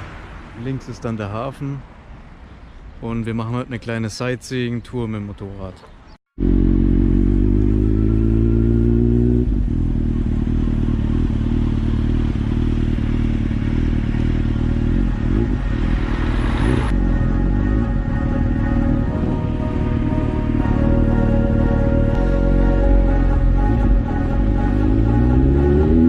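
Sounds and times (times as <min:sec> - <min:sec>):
motorcycle engine running: 0:06.4 - 0:26.0.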